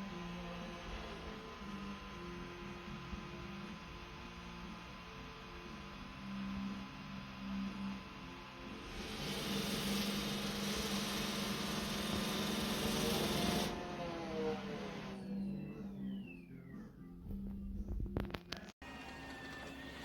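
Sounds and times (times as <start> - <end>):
hissing whir: 0.0 - 16.0
robot vacuum motor hum: 5.8 - 15.6.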